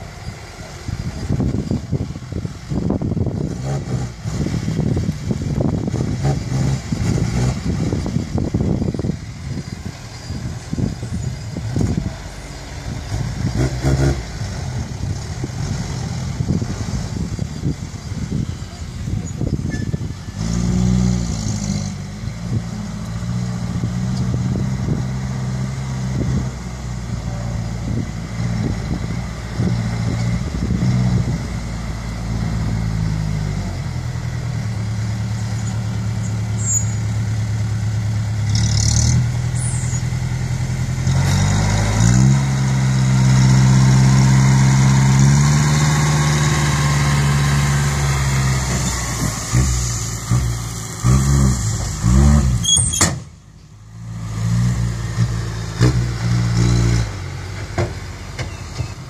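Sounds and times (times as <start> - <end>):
truck diesel engine running: 0.0 - 21.2, 39.2 - 59.0.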